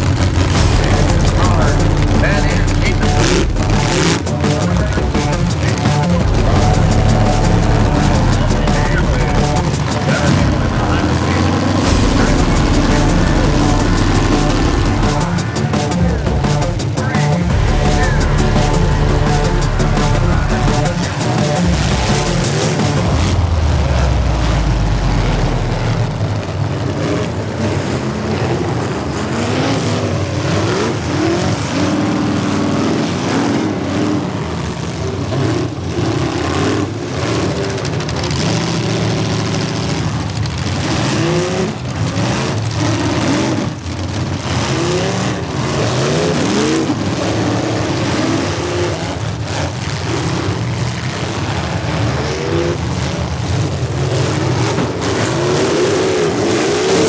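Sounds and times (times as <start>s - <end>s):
cars crunching into each other: 0.0s - 15.0s
car engines revving hard: 0.0s - 57.0s.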